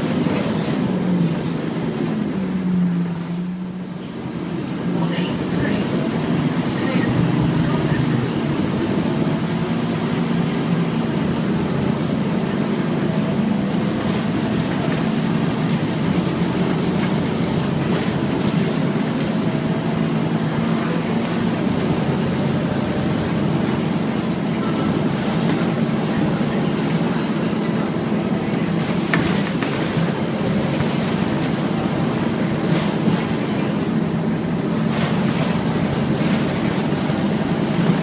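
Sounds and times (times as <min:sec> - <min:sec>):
bus engine drone: 0:00.0 - 0:38.0.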